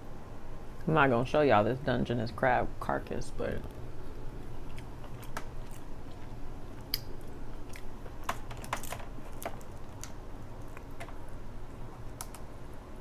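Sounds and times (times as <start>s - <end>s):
chewing: 4.4s - 12.4s
crab shell cracking: 4.5s - 12.5s.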